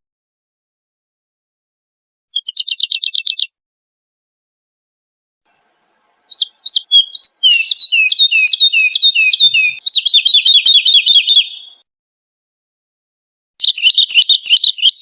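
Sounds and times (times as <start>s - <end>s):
woodlark singing: 2.4s - 3.5s, 5.5s - 11.8s, 13.6s - 15.0s.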